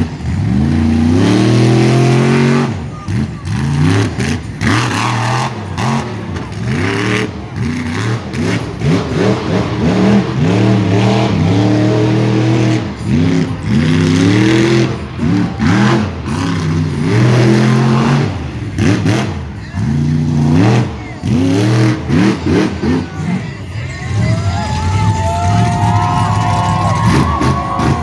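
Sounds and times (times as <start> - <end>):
monster truck engine revving: 0.0 - 28.0.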